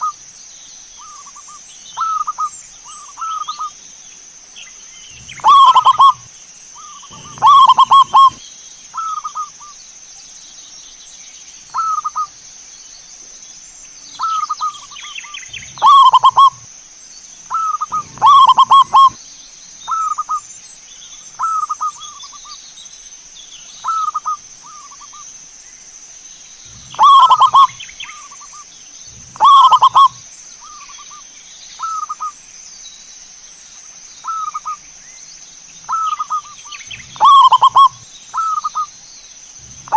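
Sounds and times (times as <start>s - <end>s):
doves cooing: 5.1s - 8.4s, 14.2s - 16.7s, 17.5s - 19.2s, 26.6s - 31.0s, 35.9s - 38.9s, 39.6s - 39.9s.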